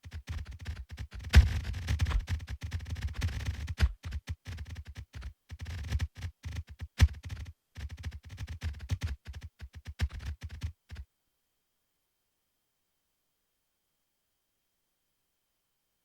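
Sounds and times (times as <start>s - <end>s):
short clicks and low thumps: 1.1s - 11.0s.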